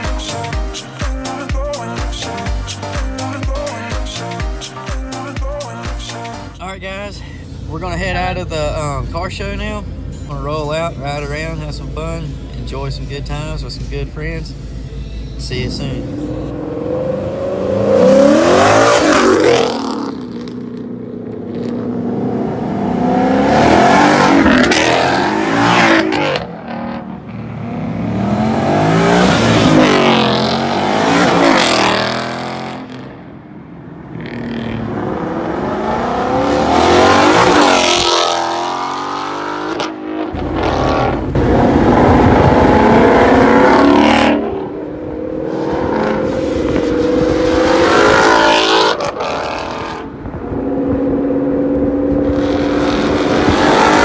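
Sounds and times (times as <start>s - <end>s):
cars accelerating past: 13.4s - 54.0s.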